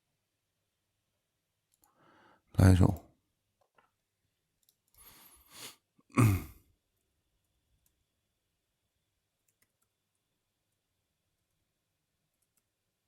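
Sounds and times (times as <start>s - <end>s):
person breathing out: 5.0s - 6.6s
person sighing: 5.5s - 6.6s.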